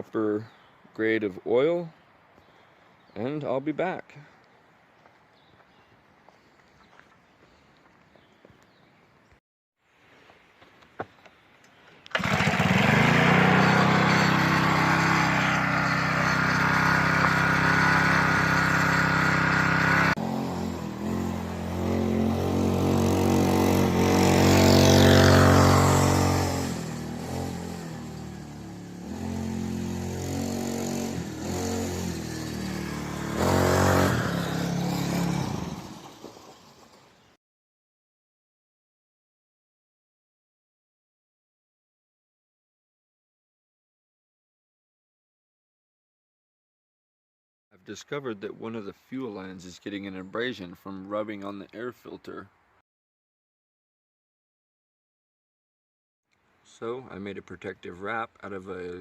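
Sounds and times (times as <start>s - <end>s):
mini bike engine revving: 12.1s - 37.1s.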